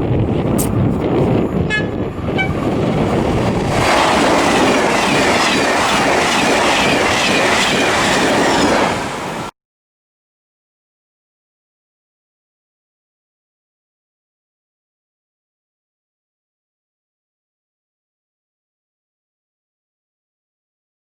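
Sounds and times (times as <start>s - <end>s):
train wheels rumbling on rails: 0.0s - 9.5s.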